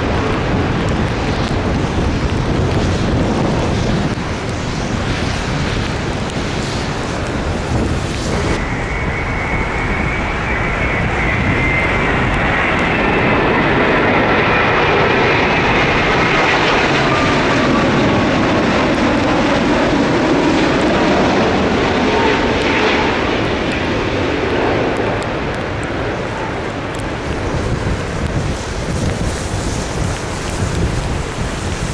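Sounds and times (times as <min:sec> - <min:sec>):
jet engine whine: 0:00.0 - 0:31.9
wind buffeting microphone: 0:00.0 - 0:31.9.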